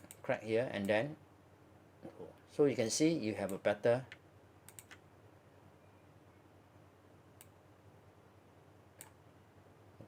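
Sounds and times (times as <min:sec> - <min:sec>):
faint computer mouse clicks: 0:03.5 - 0:05.0, 0:07.4 - 0:07.6, 0:09.0 - 0:09.2.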